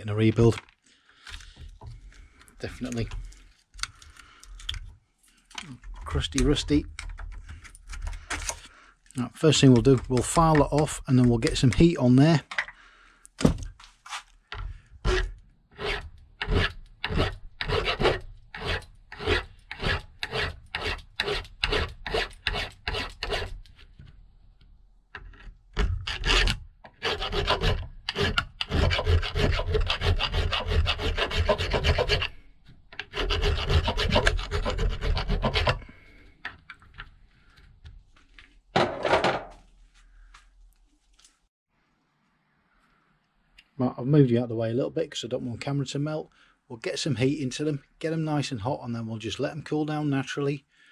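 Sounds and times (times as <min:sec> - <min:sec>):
hand file rasping on metal: 0:15.0 - 0:23.7, 0:26.0 - 0:32.4, 0:33.0 - 0:36.2.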